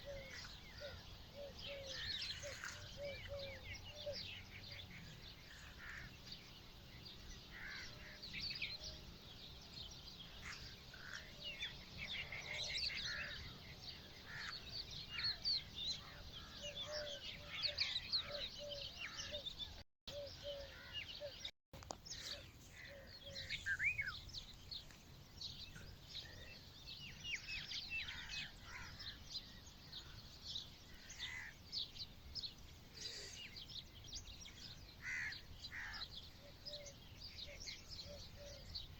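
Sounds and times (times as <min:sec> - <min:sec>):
lower repeated bird call: 0:00.0 - 0:06.1, 0:16.0 - 0:21.5
small birds chirping: 0:00.0 - 0:38.9.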